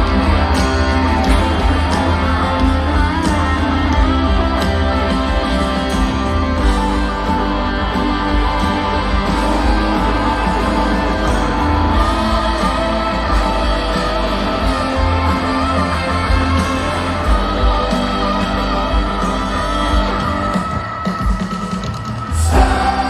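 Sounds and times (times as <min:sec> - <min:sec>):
electric guitars sustaining chords: 0:00.0 - 0:23.0
steady drum beat: 0:00.0 - 0:23.0.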